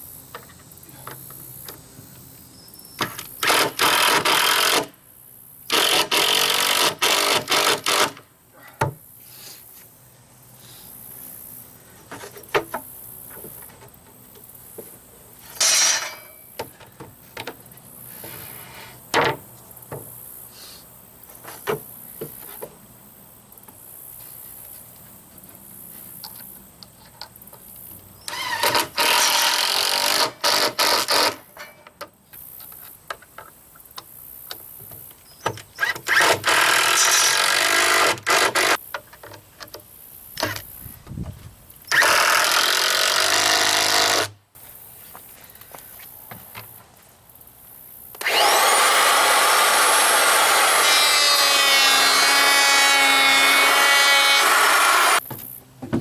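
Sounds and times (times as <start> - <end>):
handheld power tool running: 48.2 - 55.2
knocks and clicks of wood: 55.2 - 56.0.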